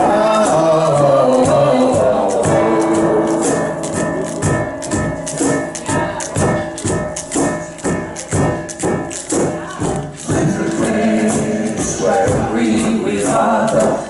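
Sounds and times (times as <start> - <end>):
group singing: 0.0 - 4.4, 10.2 - 14.0
rattle shaking a beat: 0.0 - 14.0.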